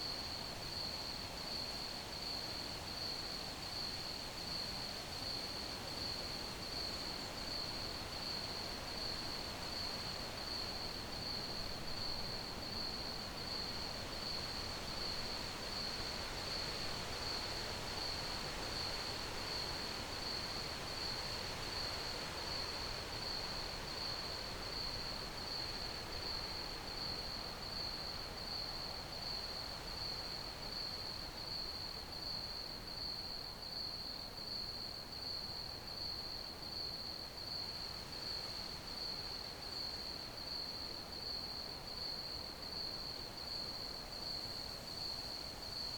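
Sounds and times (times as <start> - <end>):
crickets chirping: 24.7 - 45.9.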